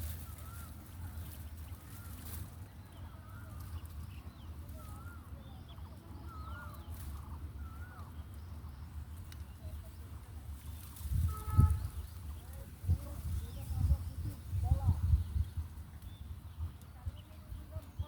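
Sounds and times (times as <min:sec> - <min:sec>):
warbling bird calls: 0:00.0 - 0:12.5.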